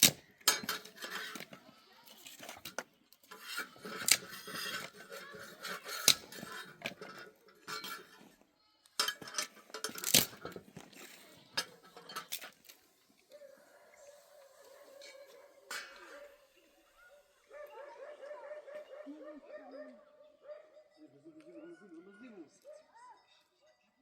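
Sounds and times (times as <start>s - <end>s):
dishes and cutlery clinking: 0.2s - 8.4s, 9.0s - 13.3s, 15.0s - 16.6s.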